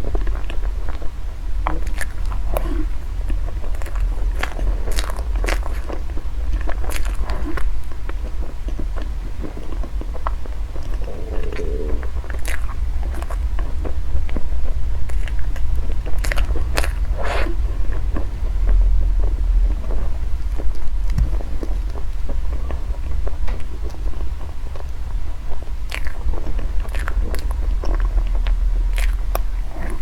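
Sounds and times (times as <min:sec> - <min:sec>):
crunchy crackles: 0:00.0 - 0:30.0
person biting and chewing food: 0:01.7 - 0:07.7, 0:09.0 - 0:13.4, 0:15.1 - 0:17.6, 0:25.9 - 0:30.0
low hum: 0:09.2 - 0:14.1.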